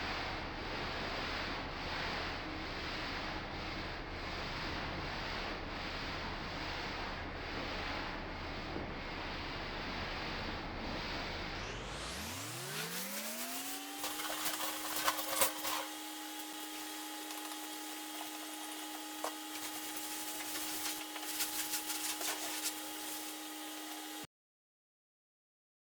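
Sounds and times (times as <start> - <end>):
small electric motor humming: 11.2 - 24.3.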